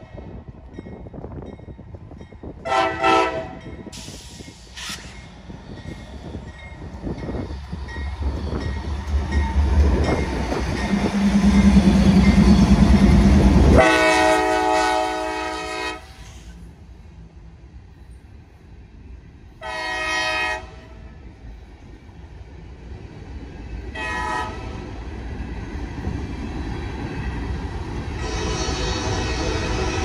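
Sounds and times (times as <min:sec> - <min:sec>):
locomotive engines rumbling: 0:00.0 - 0:30.0
locomotive horn: 0:02.6 - 0:03.7, 0:13.6 - 0:16.2, 0:19.6 - 0:21.1, 0:23.9 - 0:24.8, 0:28.2 - 0:30.0.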